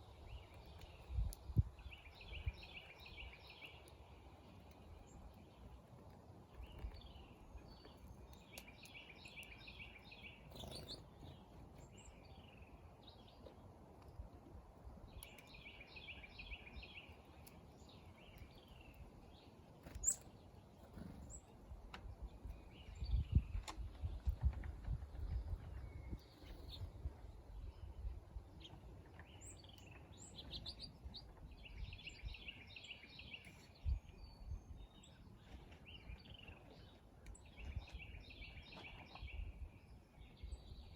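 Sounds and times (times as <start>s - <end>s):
bird chirps: 6.6s - 13.5s, 19.8s - 20.3s, 28.6s - 39.6s.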